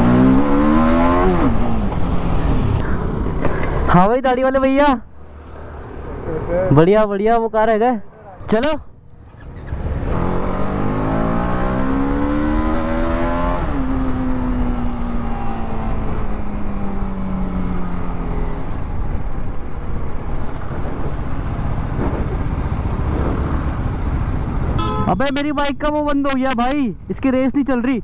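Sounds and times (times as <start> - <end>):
motorcycle engine accelerating: 0.0 - 3.8, 9.2 - 19.3
road rumble: 0.0 - 28.0.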